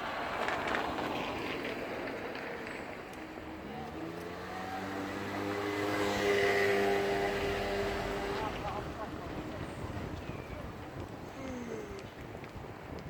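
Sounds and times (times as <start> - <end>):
street noise: 0.0 - 13.0
vehicle engine speeding up: 3.8 - 8.8.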